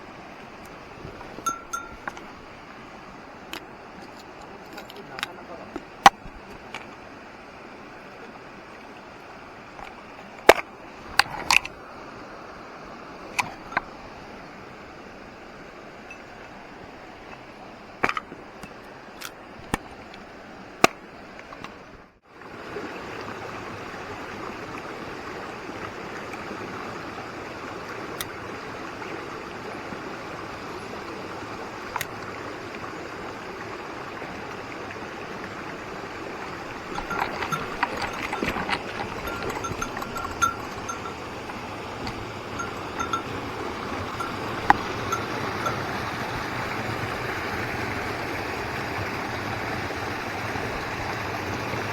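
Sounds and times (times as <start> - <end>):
stream water rushing: 0.0 - 51.9
light metallic clinking: 0.6 - 2.5, 13.3 - 14.2, 36.7 - 46.0.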